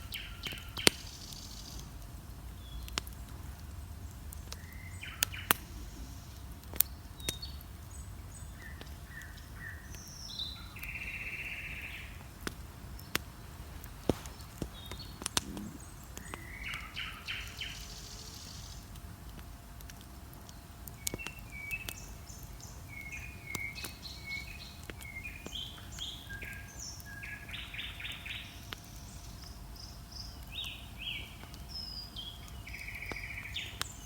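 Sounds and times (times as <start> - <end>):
songbirds singing: 0.0 - 19.6, 20.4 - 34.0
bonfire crackling and popping: 0.0 - 34.0.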